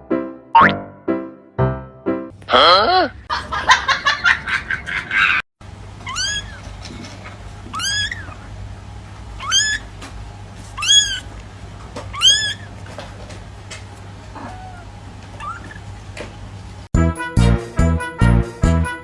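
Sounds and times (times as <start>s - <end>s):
cat meowing: 6.1s - 6.6s, 7.7s - 8.4s, 9.4s - 9.9s, 10.8s - 11.3s, 12.1s - 12.7s, 14.4s - 15.8s.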